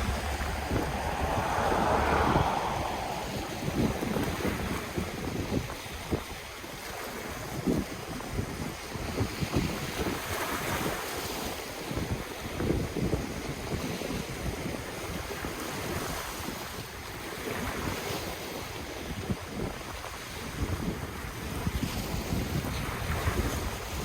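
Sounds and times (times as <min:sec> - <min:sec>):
ocean waves on shore: 0:00.0 - 0:07.4
wind buffeting microphone: 0:00.0 - 0:11.0.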